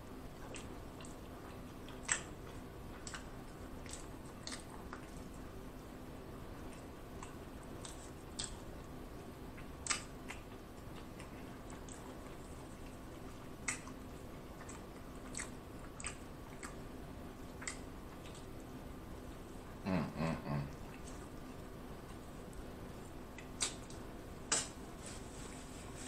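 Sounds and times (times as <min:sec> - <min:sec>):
faint steady hum: 0:00.0 - 0:26.0
wet chewing mouth smacks: 0:00.4 - 0:05.3, 0:09.5 - 0:16.8, 0:17.4 - 0:18.6, 0:23.3 - 0:24.8.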